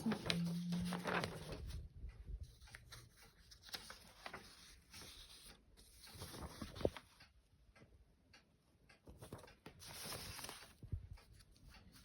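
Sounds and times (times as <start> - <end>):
paper pages rustling and clicking: 0.0 - 7.2, 9.0 - 12.0.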